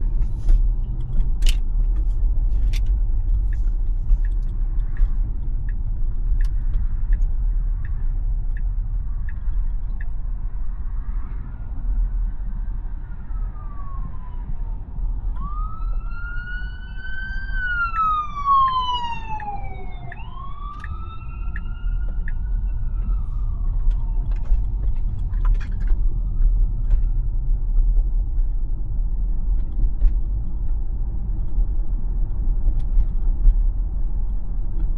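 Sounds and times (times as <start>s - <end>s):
road and tyre rumble in car: 0.0s - 34.9s
ambulance siren wailing: 12.7s - 25.2s.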